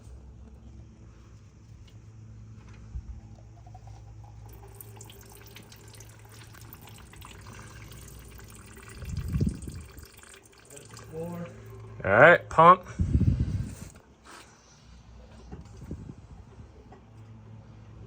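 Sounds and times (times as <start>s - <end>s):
fluid trickling and dripping: 3.2s - 12.0s.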